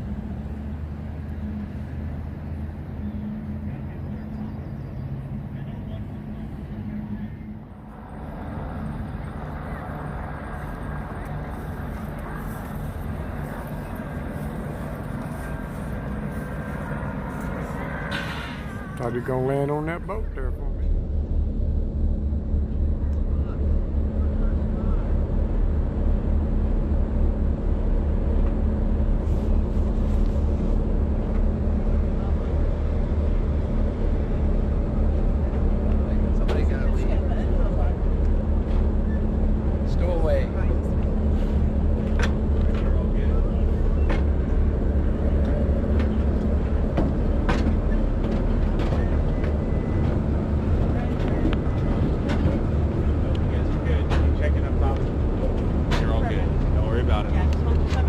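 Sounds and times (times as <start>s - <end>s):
faint constant hum: 0.0s - 58.0s
low engine rumble: 0.0s - 58.0s
knocks and clanks: 45.4s - 56.8s.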